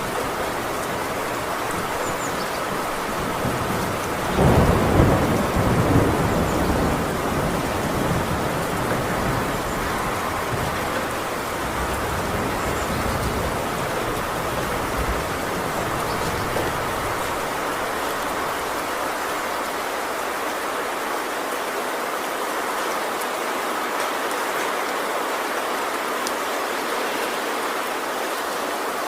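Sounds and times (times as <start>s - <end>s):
thunder rumbling: 0.0s - 20.4s
heavy rain on a metal roof: 0.0s - 29.0s.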